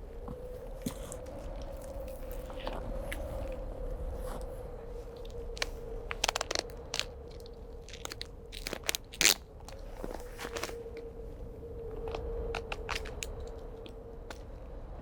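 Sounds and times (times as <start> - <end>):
crunching in frozen snow: 0.0 - 11.0.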